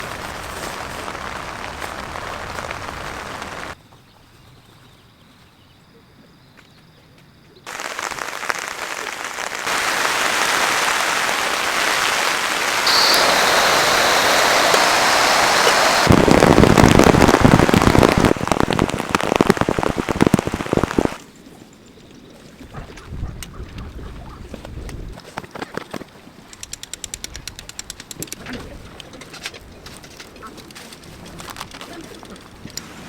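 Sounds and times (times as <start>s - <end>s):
rain striking a surface: 0.0s - 3.8s, 7.7s - 21.2s.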